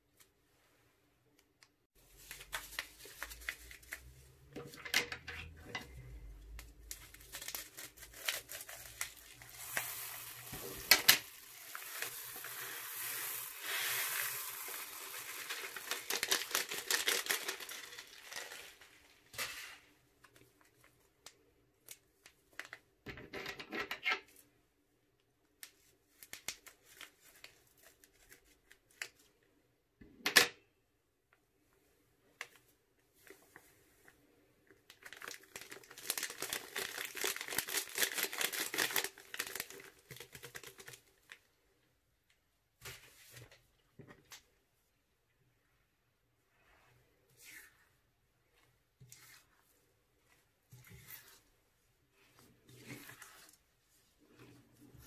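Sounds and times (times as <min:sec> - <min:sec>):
slime being mixed: 0:02.0 - 0:20.9, 0:32.6 - 0:41.6, 0:44.5 - 0:55.0
plastic crinkling: 0:02.0 - 0:22.9, 0:34.7 - 0:41.5.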